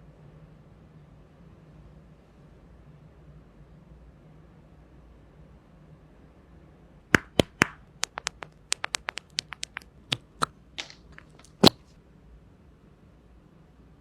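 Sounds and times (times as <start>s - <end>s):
clicks and taps on box: 7.2s - 11.8s.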